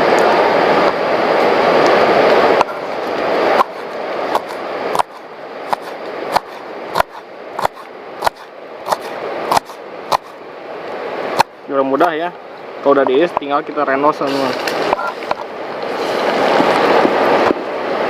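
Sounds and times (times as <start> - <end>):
steady rushing noise: 0.0 - 18.0
knife chopping on cutting board: 3.6 - 10.4.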